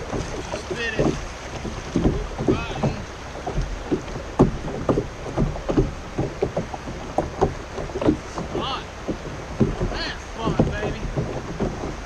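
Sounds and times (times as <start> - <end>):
light knocks on kayak hull: 0.0 - 12.0.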